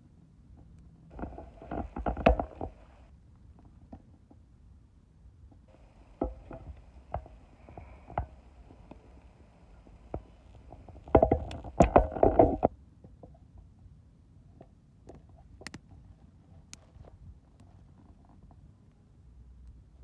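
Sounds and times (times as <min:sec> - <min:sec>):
firewood knocking together: 0:05.8 - 0:09.1.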